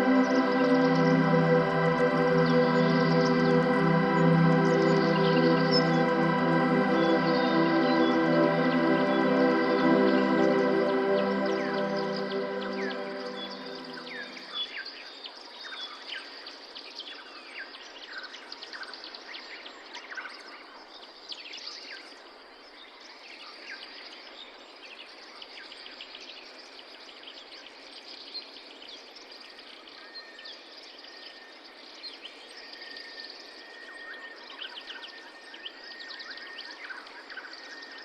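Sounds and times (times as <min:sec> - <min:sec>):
forest birds chirping: 0:00.0 - 0:14.5
steady background hiss: 0:00.0 - 0:14.5
thin steady high tone: 0:00.0 - 0:14.6.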